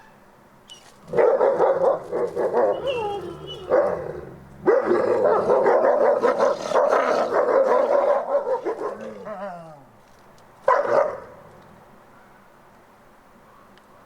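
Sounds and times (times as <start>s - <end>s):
wolf whining: 0.7s - 8.2s
loud bark-like call: 0.7s - 9.5s, 10.7s - 11.4s
wolves barking and growling: 1.0s - 9.9s, 10.6s - 11.7s.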